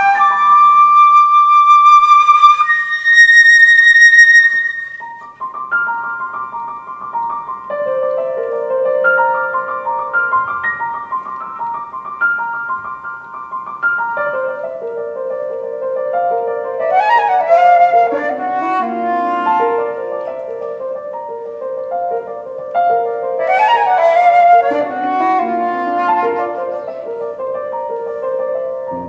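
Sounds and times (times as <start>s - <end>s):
flute playing: 0.0s - 6.1s, 16.4s - 29.0s
piano playing: 0.0s - 29.0s.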